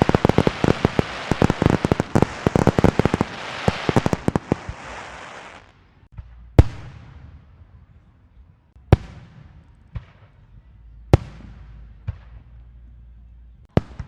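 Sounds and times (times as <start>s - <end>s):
small firework pops: 0.0s - 7.0s
fireworks crackling: 0.0s - 7.3s
loud firework bangs: 0.0s - 7.5s, 13.7s - 14.0s.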